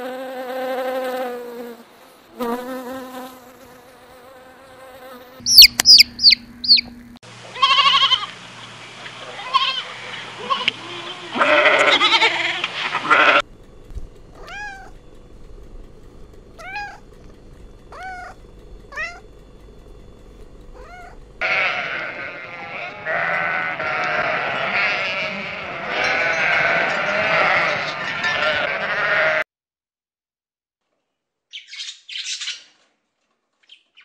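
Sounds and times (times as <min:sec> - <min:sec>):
flock of sheep bleating: 0:07.5 - 0:08.3, 0:09.2 - 0:13.4, 0:21.4 - 0:29.5
young goat bleating: 0:07.5 - 0:08.4, 0:09.3 - 0:13.4, 0:14.4 - 0:15.0, 0:16.6 - 0:17.0, 0:20.8 - 0:29.4
cat meowing: 0:14.4 - 0:15.0, 0:16.6 - 0:17.0, 0:17.9 - 0:19.3, 0:20.8 - 0:25.3.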